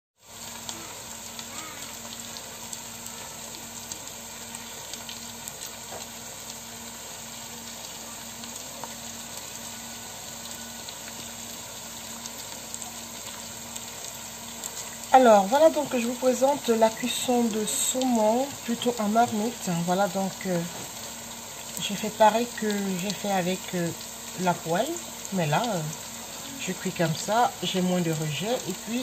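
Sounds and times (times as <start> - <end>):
fish frying in oil: 0.2 - 29.0.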